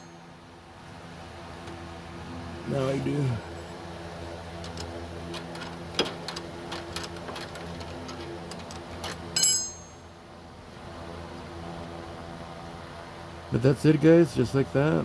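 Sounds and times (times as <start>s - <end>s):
metallic clink: 9.4s - 10.1s.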